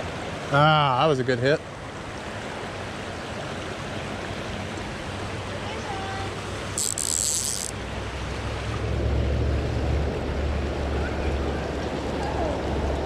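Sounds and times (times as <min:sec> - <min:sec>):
river water rushing: 0:00.0 - 0:13.0
wind rumble on microphone: 0:08.2 - 0:13.0.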